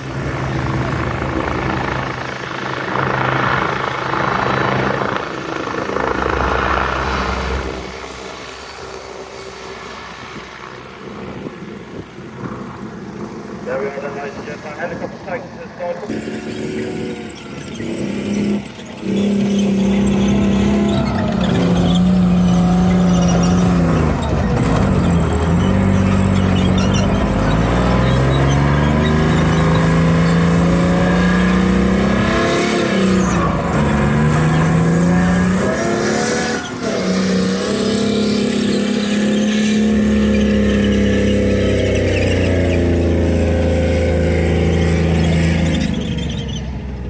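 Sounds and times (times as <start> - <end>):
helicopter engine and rotor drone: 0.0 - 47.0.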